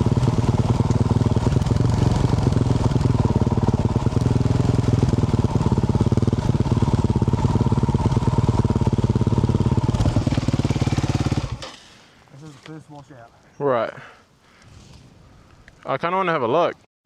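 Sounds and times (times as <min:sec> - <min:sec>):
motorcycle engine chuffing at low revs: 0:00.0 - 0:11.6.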